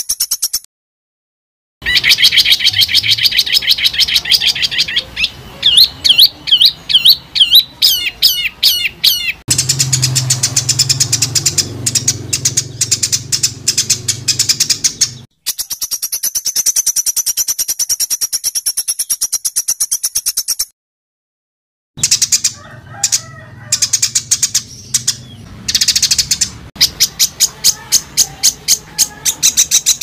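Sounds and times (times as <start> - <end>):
sharp bird chirps: 0.0 - 0.7, 1.8 - 20.7, 22.0 - 30.0
songbird trills and whistles: 1.8 - 20.7.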